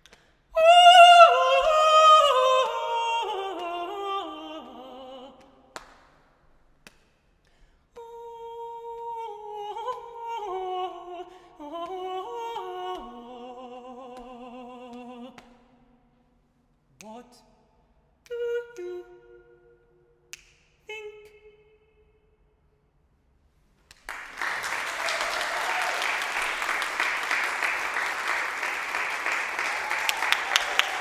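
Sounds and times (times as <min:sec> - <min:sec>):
solo voice singing: 0:00.6 - 0:05.7, 0:08.0 - 0:15.4.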